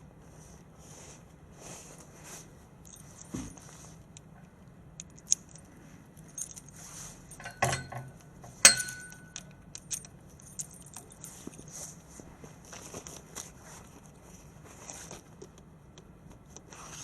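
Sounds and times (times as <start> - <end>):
small metal objects jingling: 5.2 - 11.8
metal clatter: 7.3 - 11.2
sharp ringing metallic clank: 7.4 - 9.5.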